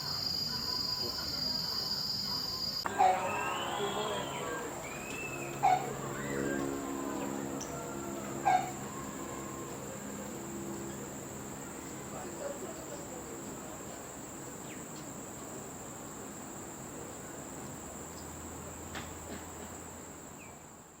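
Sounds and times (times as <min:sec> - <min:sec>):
faint low hum: 0:00.0 - 0:15.4
background hiss: 0:00.0 - 0:21.0
insects trilling: 0:00.0 - 0:21.0.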